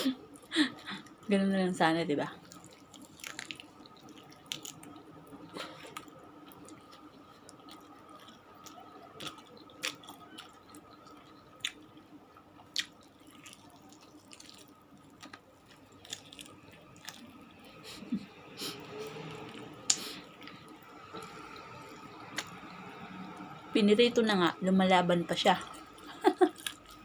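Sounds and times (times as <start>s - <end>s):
faint steady hum: 0.0s - 27.0s
person chewing food: 2.4s - 23.6s, 25.6s - 27.0s
wet mouth clicks and smacks: 19.9s - 20.6s, 22.3s - 22.6s.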